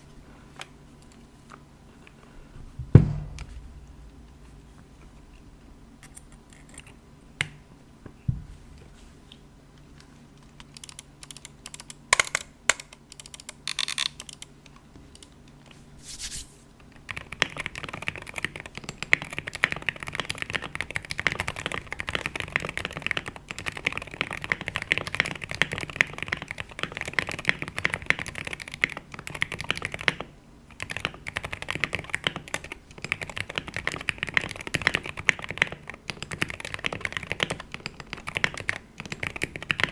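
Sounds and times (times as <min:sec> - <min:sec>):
typing on a keyboard: 0:10.6 - 0:14.5, 0:17.1 - 0:39.9.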